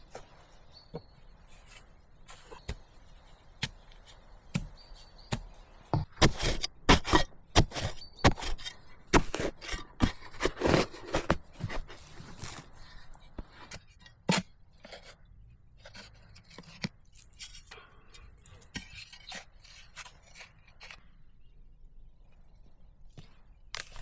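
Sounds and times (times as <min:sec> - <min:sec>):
scraping: 0:00.0 - 0:15.2.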